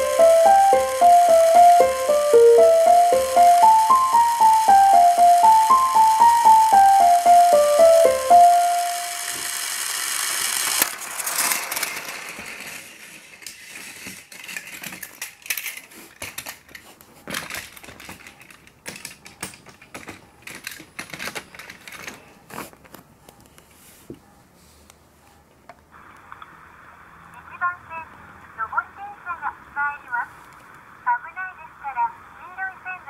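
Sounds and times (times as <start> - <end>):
electronic organ melody: 0.0 - 9.8
toy train clattering on track: 0.0 - 23.0.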